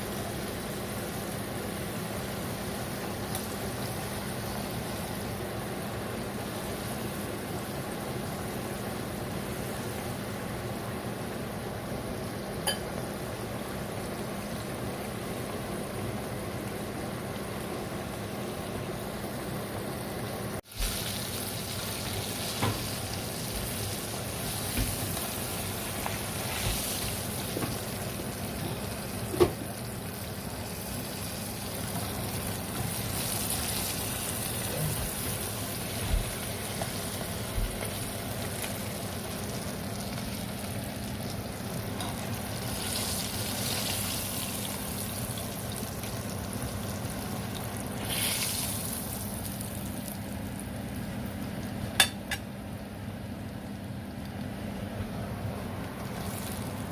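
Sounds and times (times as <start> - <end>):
chicken sizzling in hot oil: 0.0 - 56.9.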